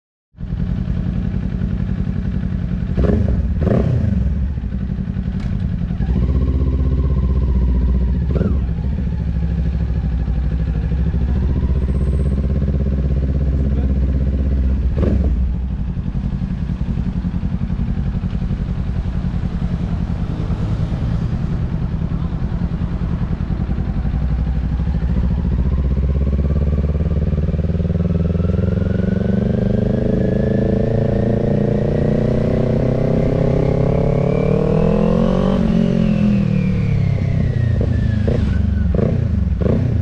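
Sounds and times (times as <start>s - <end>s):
motorcycle engine idling: 0.4s - 30.1s.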